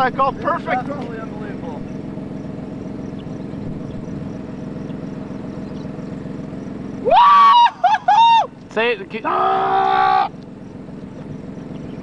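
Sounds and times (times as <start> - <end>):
vehicle engine humming: 0.0 - 12.0
man shouting woo: 7.0 - 8.5, 9.2 - 10.3.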